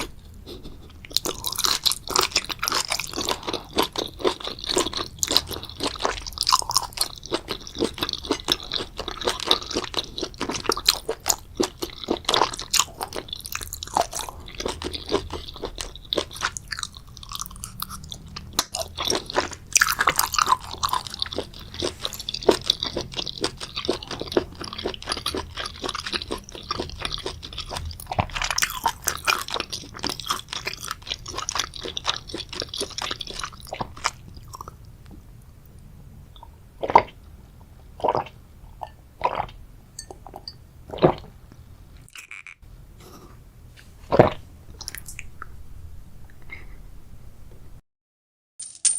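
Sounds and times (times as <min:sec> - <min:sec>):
person chewing crunchy food: 0:00.0 - 0:35.2, 0:36.4 - 0:43.4, 0:44.1 - 0:45.6.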